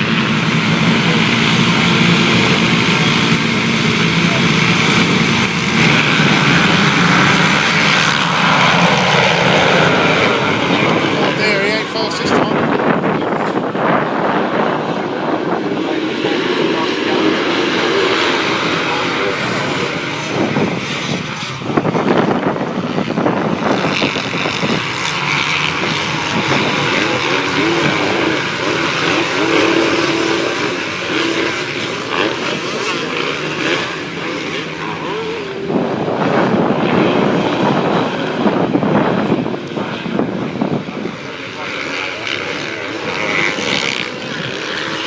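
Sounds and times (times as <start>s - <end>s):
motocross bike engines revving: 0.0s - 12.6s, 23.6s - 45.0s.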